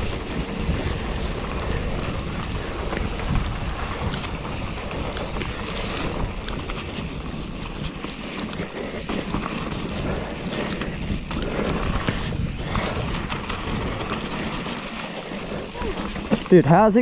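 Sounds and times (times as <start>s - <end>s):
wind noise on microphone: 0.0s - 16.6s
bike rattling over roots: 0.0s - 17.0s
tyres on wet dirt: 0.0s - 17.0s.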